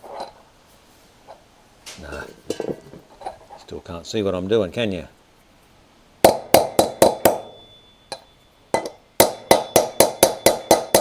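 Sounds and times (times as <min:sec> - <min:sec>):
hammer tapping on metal: 0:06.2 - 0:11.0.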